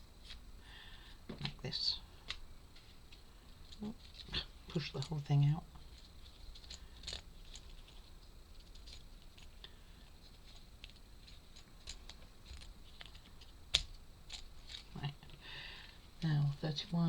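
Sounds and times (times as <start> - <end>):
wooden puzzle parts clicking: 6.0 - 8.0.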